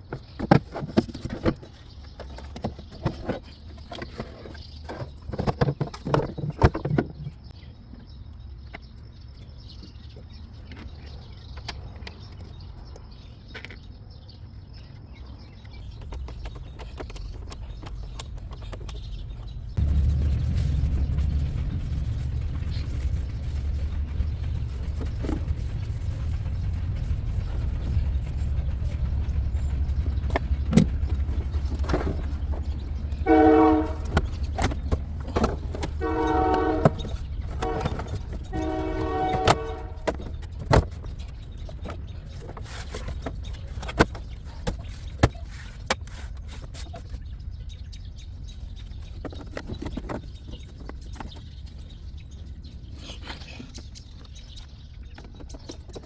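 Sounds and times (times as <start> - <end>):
low rumble: 15.8 - 45.2
horn-like honks: 33.1 - 34.8, 35.8 - 40.3.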